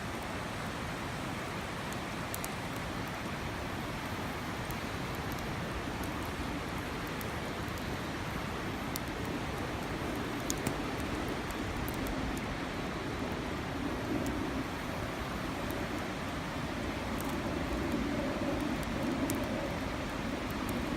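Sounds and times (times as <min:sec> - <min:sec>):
faint sharp clicks: 0:01.9 - 0:03.4, 0:04.6 - 0:06.4, 0:08.9 - 0:12.5, 0:17.1 - 0:20.9.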